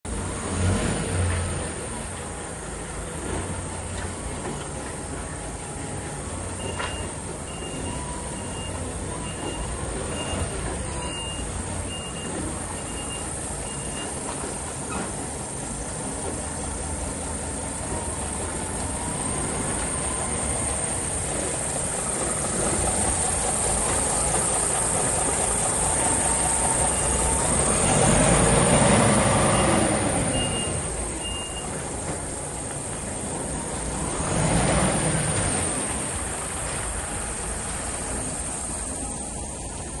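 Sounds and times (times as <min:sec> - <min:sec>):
truck diesel engine running: 0:00.0 - 0:40.0
high beeps: 0:29.5 - 0:31.7.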